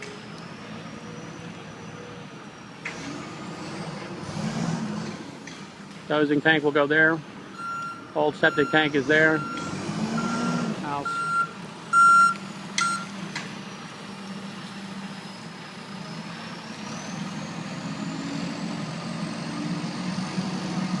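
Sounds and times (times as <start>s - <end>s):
reversing alarm beeps: 7.5s - 13.2s.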